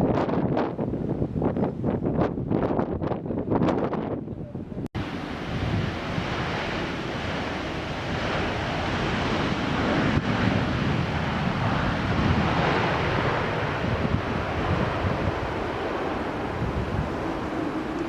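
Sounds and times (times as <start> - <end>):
jet airliner roaring: 5.0 - 18.0.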